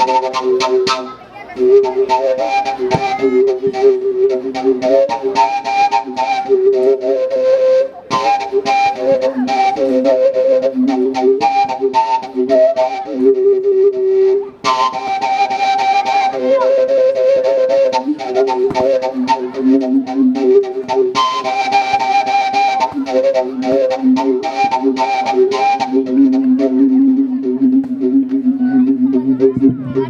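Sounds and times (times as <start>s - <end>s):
quick percussive beats: 0.0s - 3.9s, 17.8s - 26.0s
flute melody: 0.0s - 30.0s.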